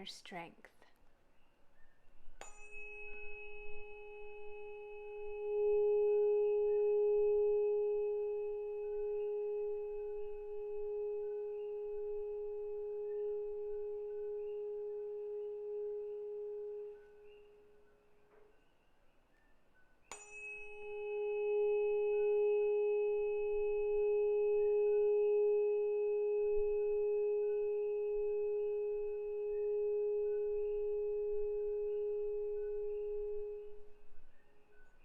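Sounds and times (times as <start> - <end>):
tuning fork ringing: 1.4 - 35.0.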